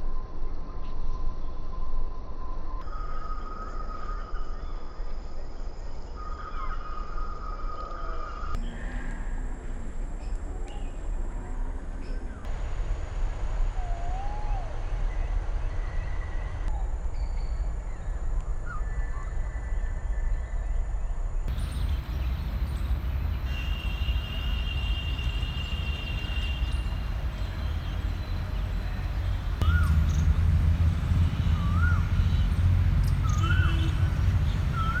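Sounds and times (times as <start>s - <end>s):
steady low rumble: 8.6s - 35.0s
birds whistling short notes: 21.6s - 30.3s.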